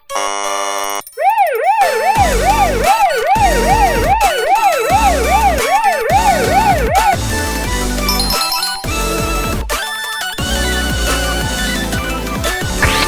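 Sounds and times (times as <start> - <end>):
electronic siren yelping: 1.2 - 7.2
low pulsing beats: 2.2 - 4.2.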